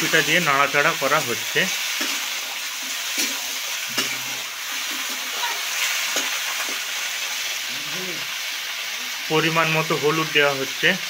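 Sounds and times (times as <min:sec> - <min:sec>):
vegetables sizzling in hot oil: 0:00.0 - 0:11.0
spatula scraping pan: 0:01.7 - 0:06.9.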